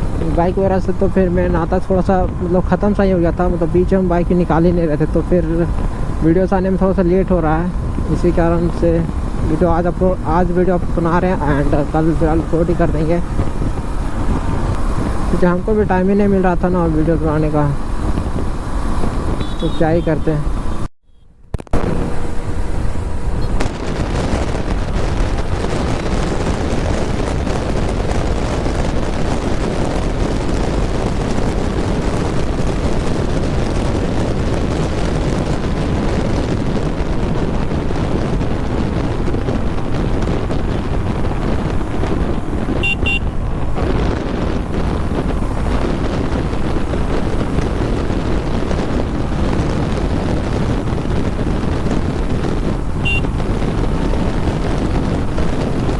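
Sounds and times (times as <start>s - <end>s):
motorcycle engine running: 0.0s - 20.8s, 21.6s - 55.9s
wind buffeting microphone: 0.0s - 55.9s
horn toot: 19.3s - 21.2s, 42.8s - 43.6s, 53.0s - 53.5s.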